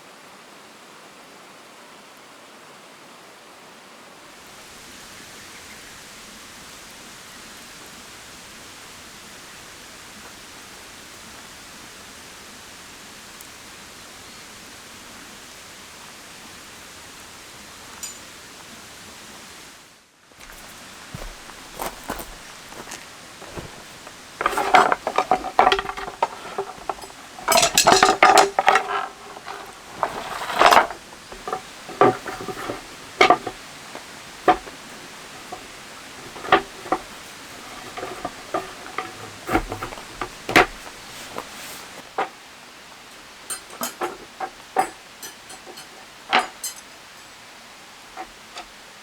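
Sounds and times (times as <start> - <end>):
rain hissing: 4.2 - 49.0
metal cookware clinking and clattering: 23.4 - 41.4, 43.5 - 46.9.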